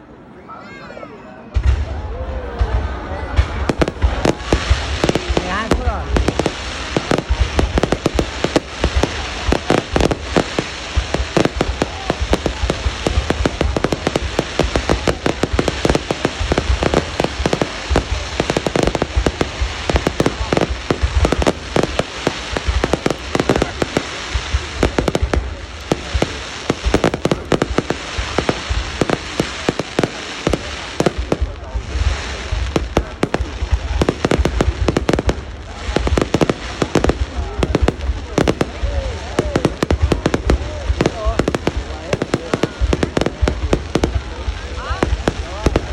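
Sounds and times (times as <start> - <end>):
fireworks bangs and cracks: 1.4 - 45.9.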